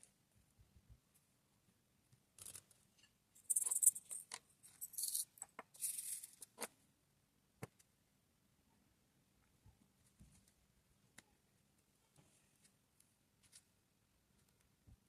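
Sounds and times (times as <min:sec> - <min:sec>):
small plastic beads rattling: 0:03.4 - 0:06.4.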